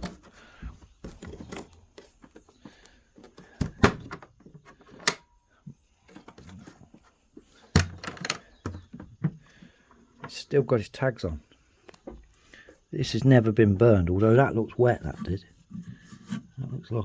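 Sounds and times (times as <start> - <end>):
stove parts clicking and clunking: 0.0 - 5.4, 7.7 - 9.4.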